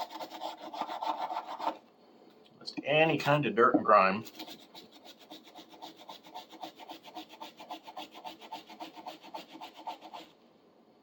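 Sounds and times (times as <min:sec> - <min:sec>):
brush scrubbing metal wrench: 0:04.2 - 0:10.2.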